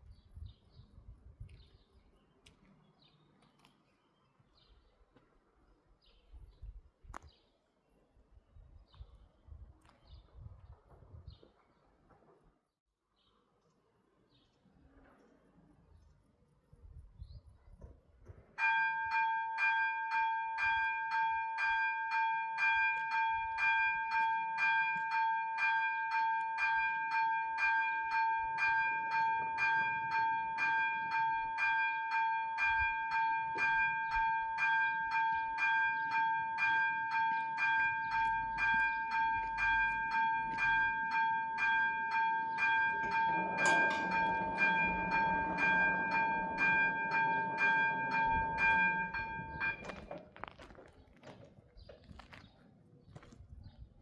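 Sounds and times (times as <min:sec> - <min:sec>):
level crossing warning bells: 0:18.6 - 0:50.7
train rumble: 0:36.5 - 0:50.8.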